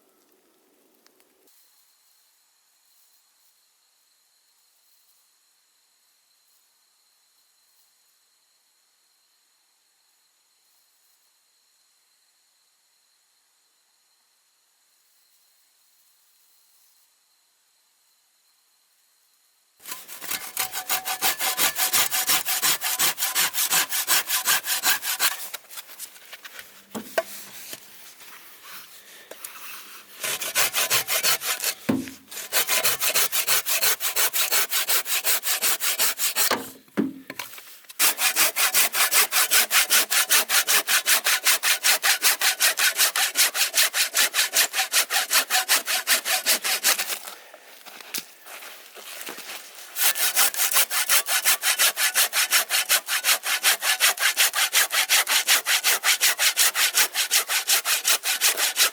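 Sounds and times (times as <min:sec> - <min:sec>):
hand saw cutting wood: 0:19.8 - 0:26.1, 0:26.8 - 0:27.8, 0:28.7 - 0:36.8, 0:37.9 - 0:47.4, 0:49.2 - 0:58.9.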